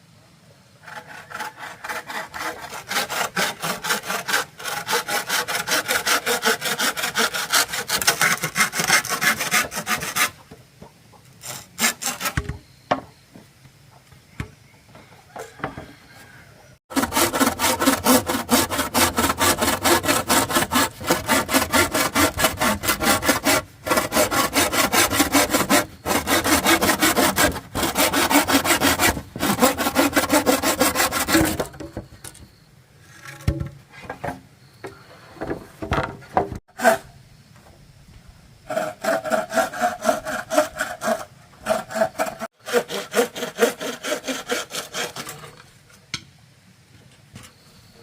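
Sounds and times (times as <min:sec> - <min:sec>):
hand saw cutting bamboo: 0:00.8 - 0:10.5, 0:11.4 - 0:12.5, 0:16.9 - 0:31.8, 0:36.7 - 0:37.1, 0:38.7 - 0:45.6.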